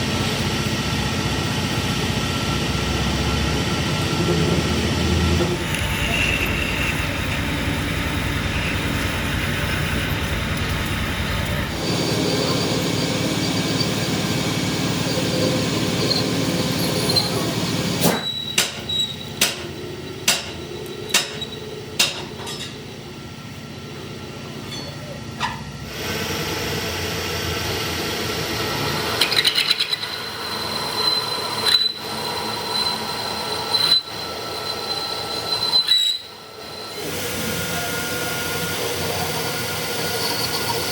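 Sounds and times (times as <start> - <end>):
machine running with squeal: 3.0 - 23.0, 24.6 - 26.2, 28.8 - 40.9.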